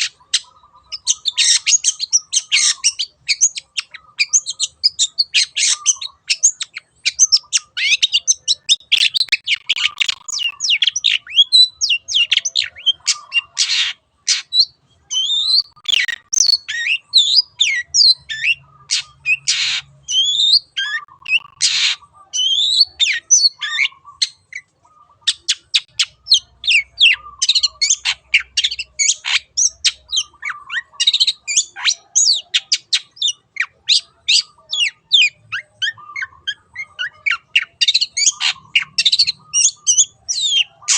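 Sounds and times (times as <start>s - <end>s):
bird singing chirps and whistles: 0.4s - 24.7s, 25.3s - 40.9s
harsh rasping bird notes: 8.8s - 10.6s, 21.1s - 22.0s.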